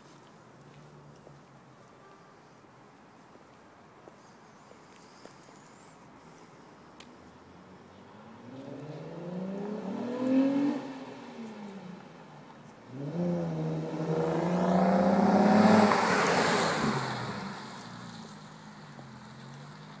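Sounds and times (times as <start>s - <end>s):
car engine revving: 8.4s - 11.6s, 12.9s - 17.7s.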